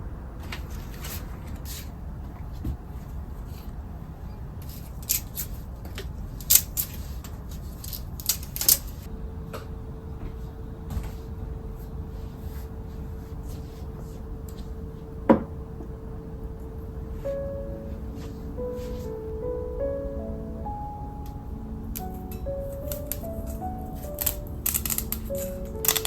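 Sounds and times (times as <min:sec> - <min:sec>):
steady hum: 0:14.2 - 0:26.0.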